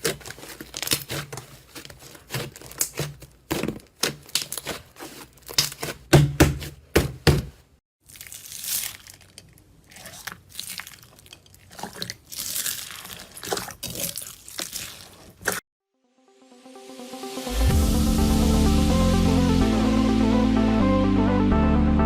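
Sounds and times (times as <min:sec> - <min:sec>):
slime squeezed by hand: 0:08.0 - 0:15.6
electronic music: 0:16.0 - 0:22.0.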